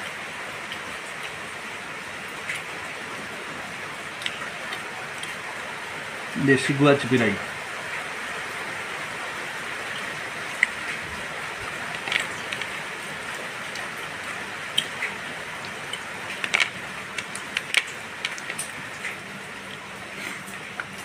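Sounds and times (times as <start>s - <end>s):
steady rain hiss: 0.0s - 21.0s
sharp clicks and ticks: 14.8s - 19.2s.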